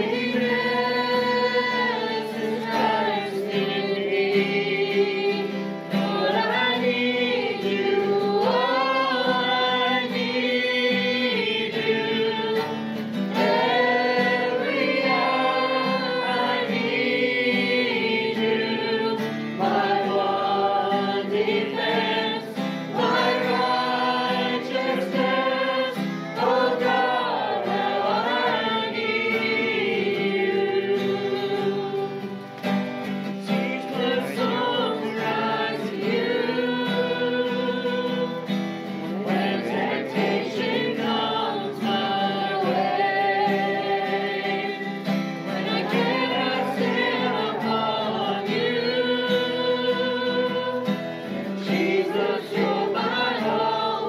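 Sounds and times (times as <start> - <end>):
congregation singing: 0.0 - 54.0.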